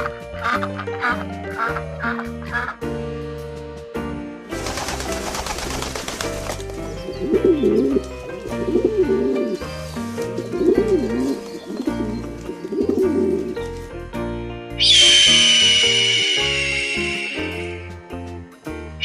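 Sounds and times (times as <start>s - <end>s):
background music: 0.0s - 19.0s
bird low wavering calls: 14.8s - 18.0s
high steady whistling tone: 14.8s - 18.2s.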